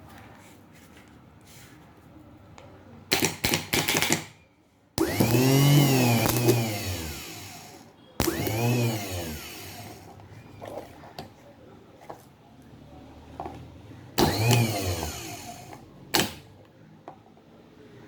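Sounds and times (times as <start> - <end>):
starter motor whining: 5.0 - 10.8, 14.2 - 16.6.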